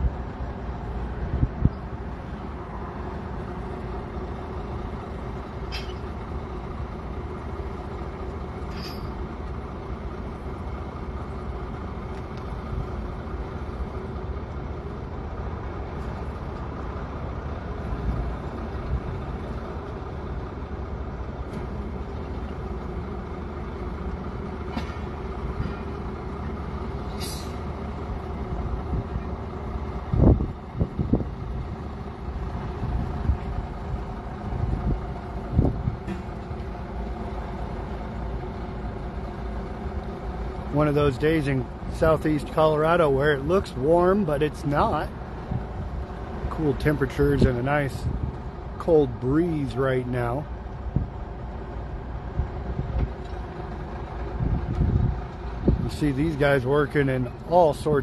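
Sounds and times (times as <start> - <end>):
heavy equipment diesel engines: 0.0 - 58.0
metallic clinks or squeaks: 8.7 - 9.2.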